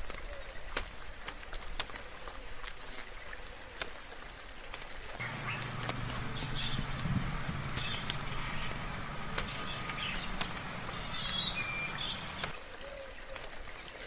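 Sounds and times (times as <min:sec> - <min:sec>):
soft rain: 0:00.0 - 0:14.0
birds chirping and whistling: 0:05.2 - 0:12.5.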